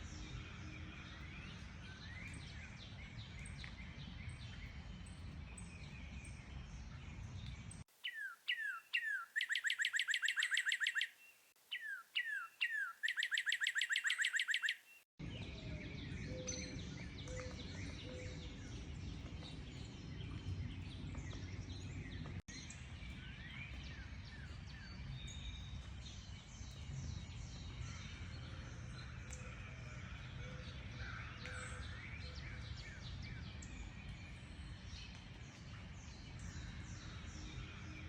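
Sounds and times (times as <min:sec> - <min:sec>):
bird singing rapid trill: 0:08.0 - 0:15.1
chorus of birds chirping: 0:08.0 - 0:19.5.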